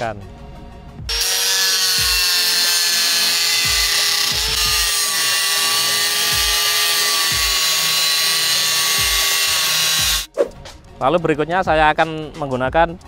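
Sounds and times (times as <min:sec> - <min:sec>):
angle grinder grinding steel: 0:01.1 - 0:10.3.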